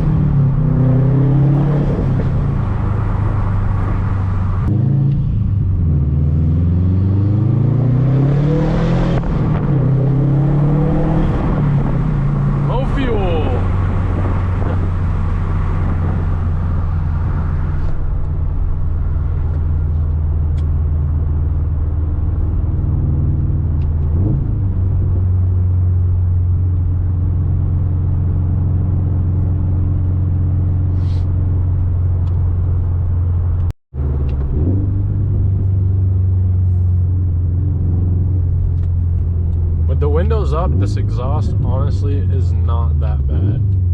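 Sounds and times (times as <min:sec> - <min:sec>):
car engine humming: 0:00.0 - 0:43.9
muted exhaust rumble: 0:09.2 - 0:43.9.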